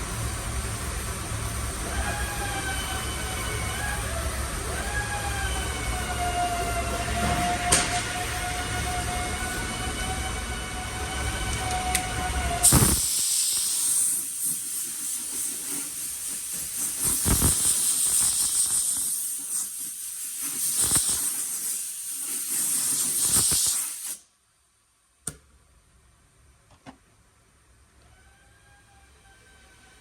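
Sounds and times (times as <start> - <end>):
paint spray hissing: 12.6 - 24.3.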